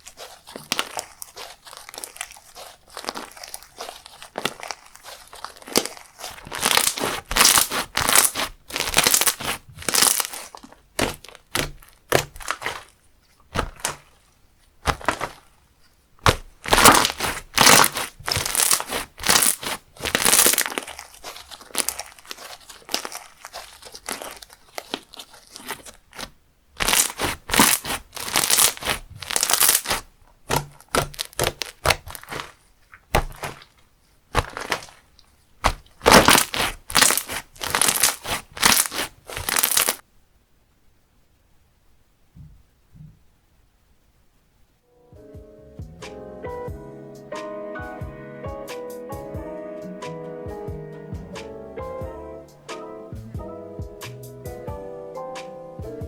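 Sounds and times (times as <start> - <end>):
slime squished by hand: 0.0 - 15.6, 16.2 - 40.0.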